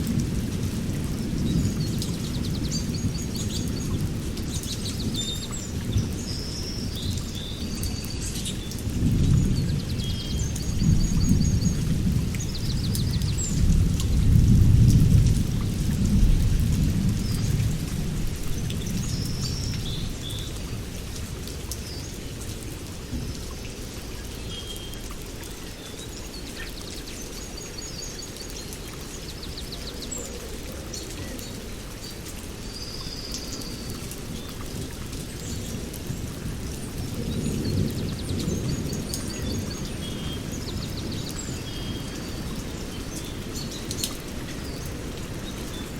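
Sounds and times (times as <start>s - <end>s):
steady rain: 0.0s - 45.9s
rolling thunder: 8.9s - 20.2s.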